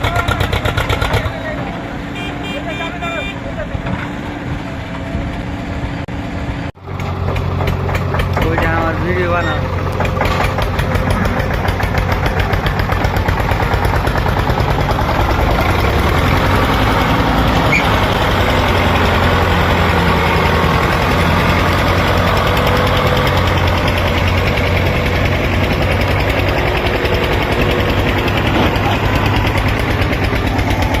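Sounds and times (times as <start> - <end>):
tractor engine chugging: 0.0 - 1.7, 6.8 - 31.0.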